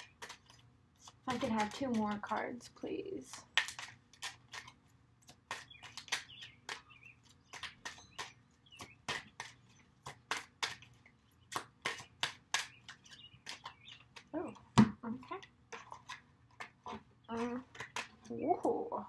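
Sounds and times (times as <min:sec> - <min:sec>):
birds chirping: 0:05.3 - 0:16.1, 0:16.7 - 0:19.0.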